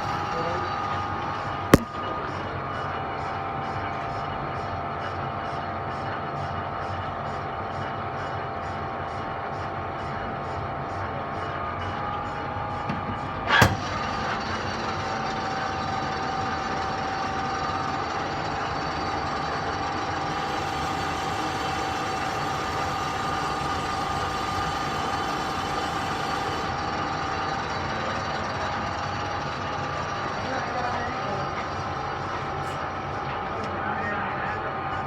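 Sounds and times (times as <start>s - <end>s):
workshop machinery whining: 0.0s - 2.6s, 11.4s - 35.0s
sharp metallic knock: 1.8s - 2.0s.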